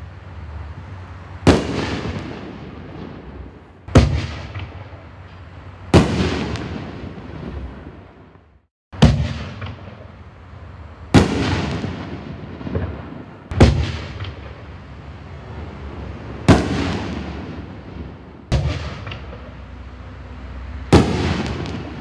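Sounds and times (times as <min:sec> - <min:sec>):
firework bangs with echoing rumble: 0:01.4 - 0:08.4, 0:09.0 - 0:10.3, 0:11.1 - 0:14.8, 0:15.5 - 0:19.7, 0:20.9 - 0:22.0.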